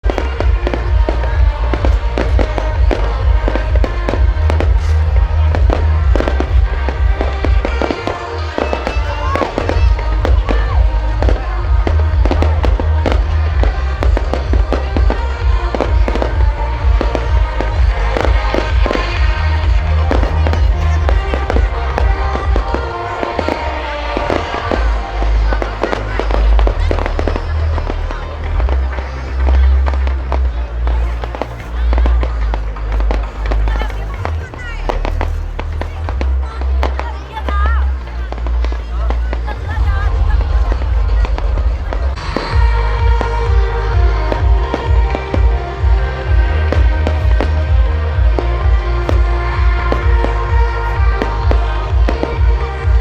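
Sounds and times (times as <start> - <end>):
fireworks bangs: 0.0 - 28.0
deep rumble: 0.0 - 53.0
music playing: 0.0 - 53.0.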